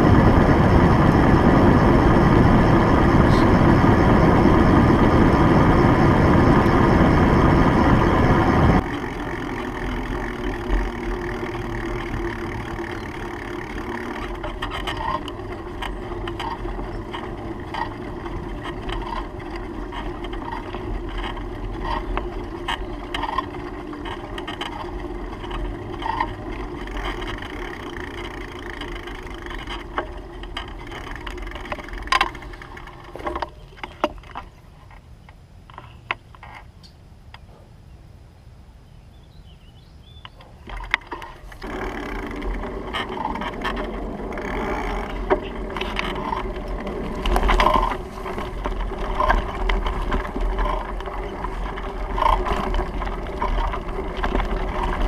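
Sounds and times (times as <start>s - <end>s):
wind rushing over microphone: 0.0s - 9.5s
steady outdoor noise: 0.0s - 55.0s.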